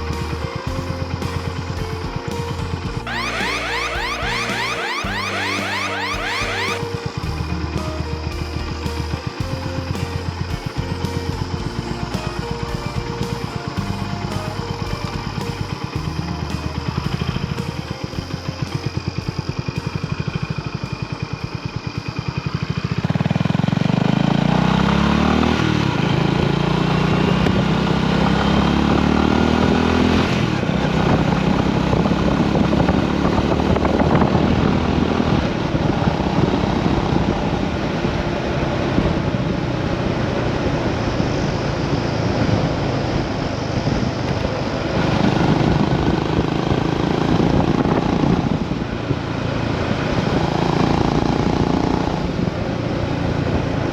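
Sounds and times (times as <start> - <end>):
wind noise on microphone: 25.4 - 53.9.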